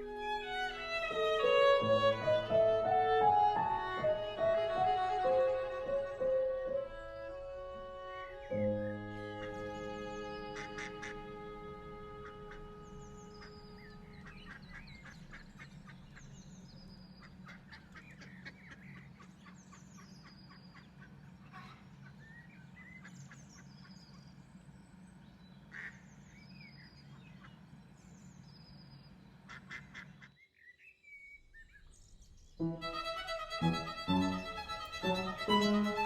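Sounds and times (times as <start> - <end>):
steady low hum: 0.0 - 30.2, 32.0 - 36.0
waterfowl calling: 9.2 - 16.3, 17.2 - 24.0, 25.7 - 26.1, 29.5 - 30.4, 32.8 - 36.0.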